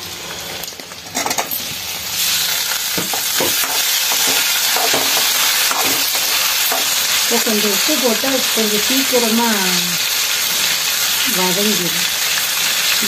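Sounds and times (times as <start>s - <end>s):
vegetables sizzling in hot oil: 0.0s - 13.0s
metal spoon knocking pan: 3.0s - 6.9s.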